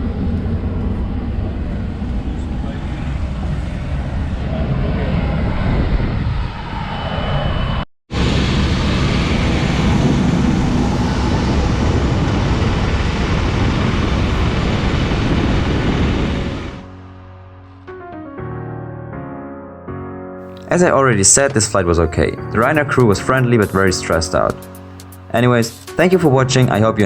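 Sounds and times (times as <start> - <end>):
jet engines running: 0.0 - 16.9.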